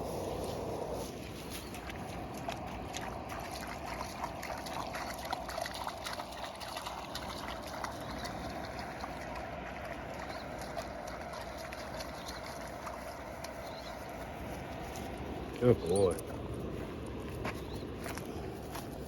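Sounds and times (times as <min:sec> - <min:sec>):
small clicks and splashes: 0:01.2 - 0:16.3
water trickling: 0:01.2 - 0:16.5.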